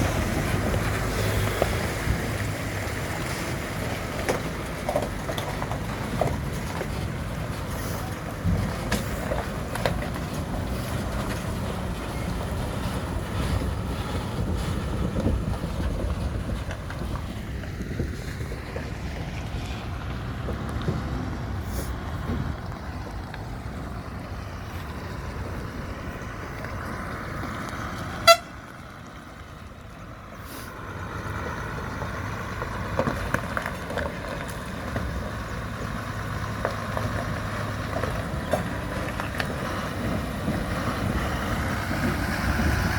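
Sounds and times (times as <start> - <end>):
truck engine and road rumble: 0.0 - 42.9
short horn toot: 28.2 - 28.5.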